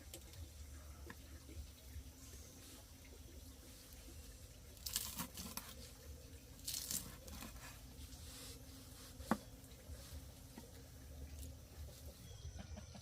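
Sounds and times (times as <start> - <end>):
crinkling rustling handling: 4.8 - 12.1.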